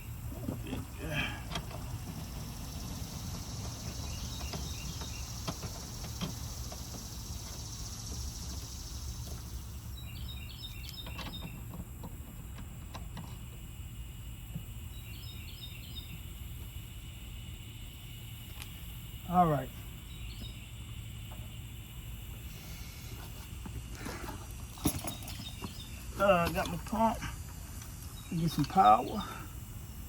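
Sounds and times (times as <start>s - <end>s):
bird chirping: 0.0s - 11.8s, 13.3s - 30.0s
high hiss: 16.3s - 24.6s.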